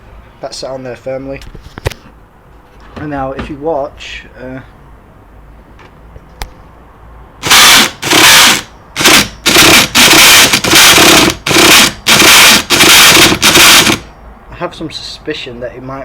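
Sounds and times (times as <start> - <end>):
electric starter motor cranking: 7.4 - 14.1.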